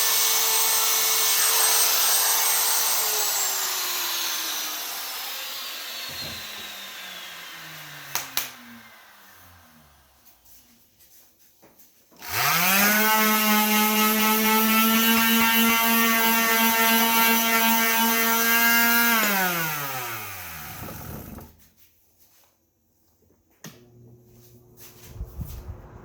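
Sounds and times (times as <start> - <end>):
power tool motor whining: 0.0 - 10.2, 12.2 - 21.6.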